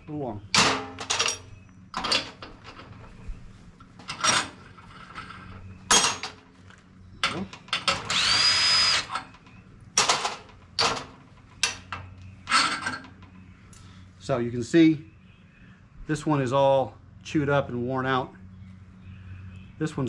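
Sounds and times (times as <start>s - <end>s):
steel parts clattering on workbench: 0.6s - 2.9s, 4.0s - 6.5s
small power tool spinning: 7.9s - 9.3s.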